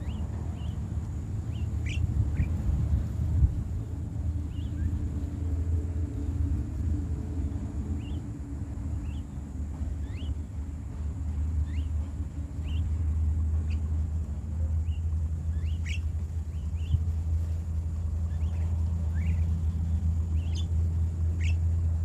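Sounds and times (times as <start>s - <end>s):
loud low rumble: 0.0s - 22.0s
upward-sweeping bird chirps: 1.5s - 2.6s, 14.8s - 17.0s.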